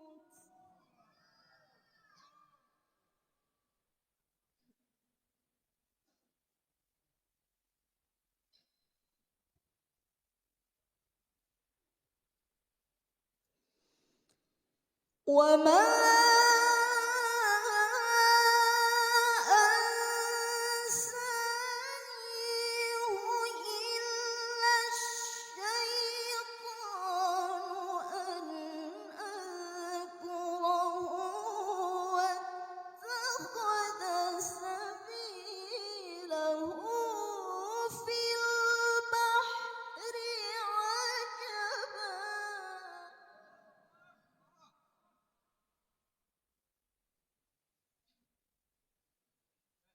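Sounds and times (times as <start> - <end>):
woman chanting melodically: 15.3 - 43.0.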